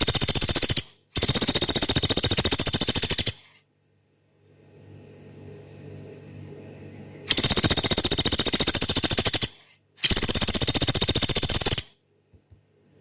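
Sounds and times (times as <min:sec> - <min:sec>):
woodpecker rattling trills: 0:00.0 - 0:03.4, 0:07.3 - 0:12.0.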